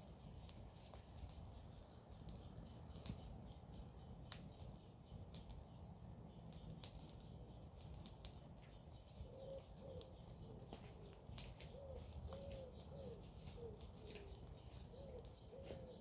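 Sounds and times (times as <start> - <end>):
bonfire crackling and popping: 0.0 - 16.0
dove cooing softly: 9.1 - 16.0.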